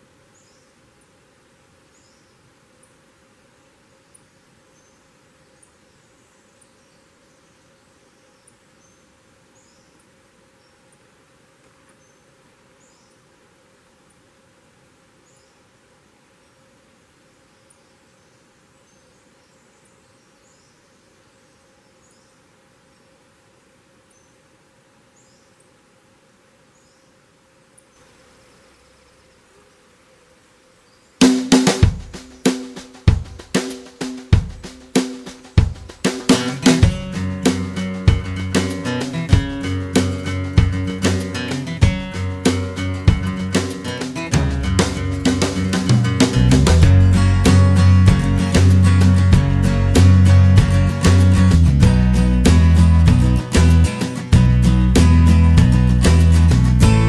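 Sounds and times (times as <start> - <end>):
small birds calling: 0.0 - 14.3, 15.1 - 25.8, 26.6 - 54.4
insect buzz: 0.0 - 46.7
steady soft hiss: 0.0 - 57.0
drum-kit music: 31.2 - 57.0.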